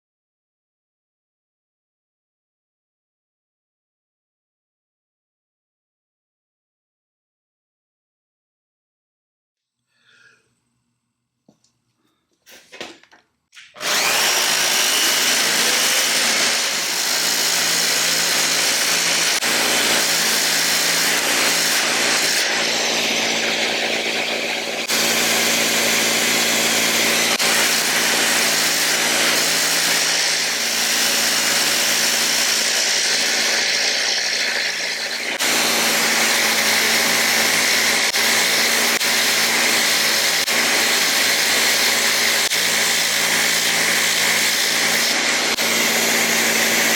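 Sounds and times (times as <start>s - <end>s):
electric power tool running: 13.7s - 46.9s.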